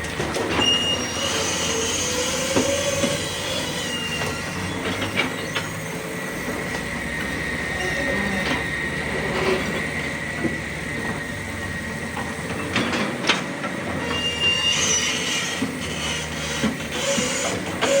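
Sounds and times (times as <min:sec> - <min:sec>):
diesel engine rumble: 0:00.0 - 0:18.0
metal squeals: 0:00.4 - 0:06.5, 0:13.9 - 0:18.0.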